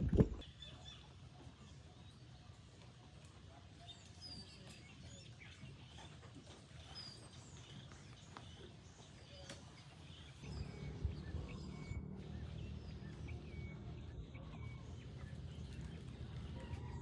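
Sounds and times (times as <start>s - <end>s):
faint bird chirps: 6.8s - 17.0s
low steady rumble: 10.4s - 17.0s.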